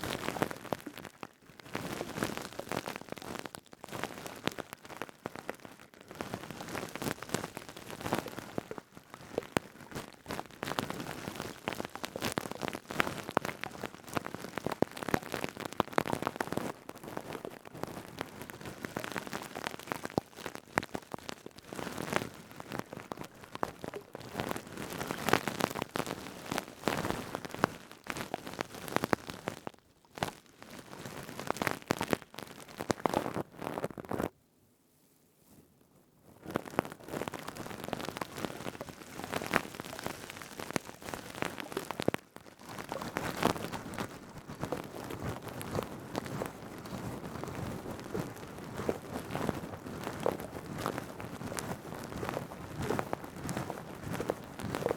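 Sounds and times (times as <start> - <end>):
scouring pad crackling: 36.6 - 54.9.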